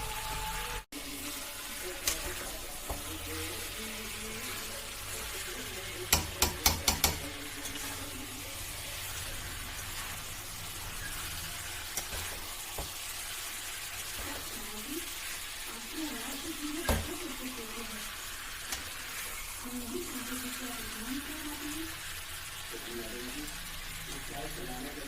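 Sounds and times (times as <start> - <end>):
curry sizzling in a pan: 0.0 - 25.0
spoon knocking against pan: 6.1 - 7.3.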